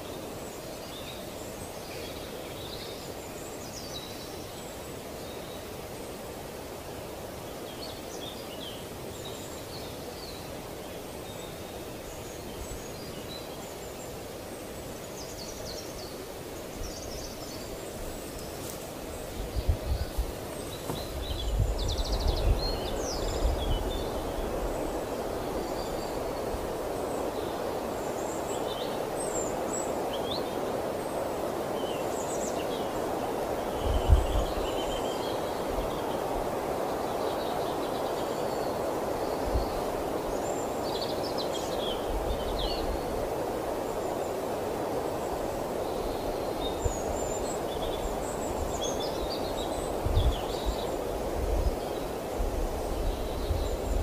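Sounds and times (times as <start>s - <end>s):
outdoor background noise: 0.0s - 54.0s
birds chirping: 7.6s - 44.5s
wind buffeting microphone: 19.2s - 28.4s, 33.0s - 37.2s, 41.8s - 54.0s.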